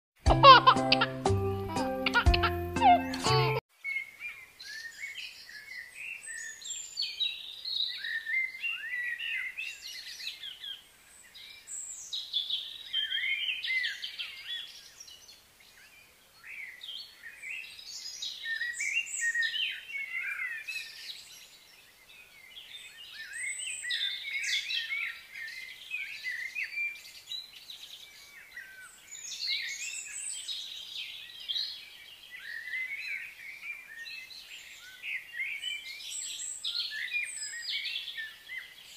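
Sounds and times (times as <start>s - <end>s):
birds chirping and singing: 0.4s - 38.9s.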